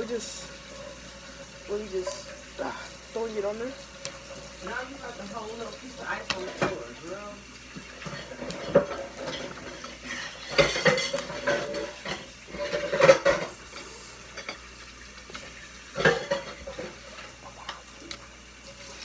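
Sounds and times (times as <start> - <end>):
dishes and cutlery clattering: 6.3 - 7.0, 7.8 - 14.7, 15.3 - 17.8.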